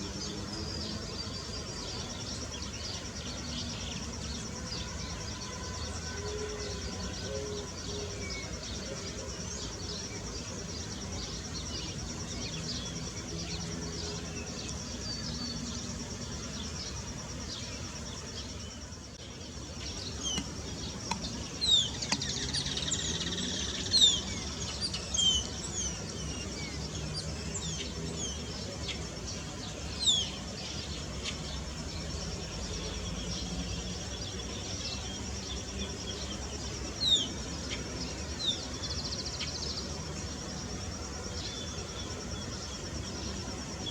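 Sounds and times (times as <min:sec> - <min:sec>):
high insect buzz: 0:00.0 - 0:43.9
small birds chirping: 0:14.6 - 0:39.9.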